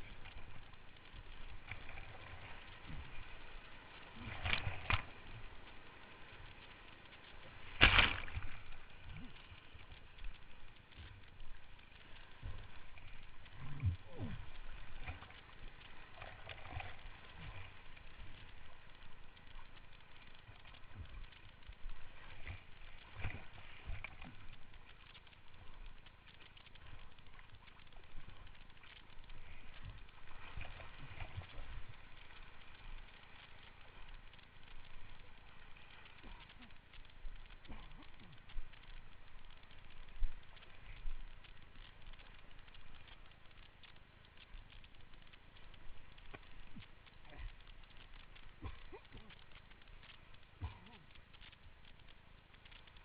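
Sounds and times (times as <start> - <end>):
rushing river water: 0.0 - 39.4.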